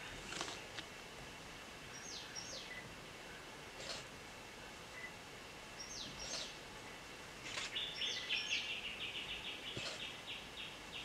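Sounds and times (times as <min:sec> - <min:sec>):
birds whistling and calling: 0:01.9 - 0:02.9, 0:05.8 - 0:06.6, 0:07.6 - 0:11.0.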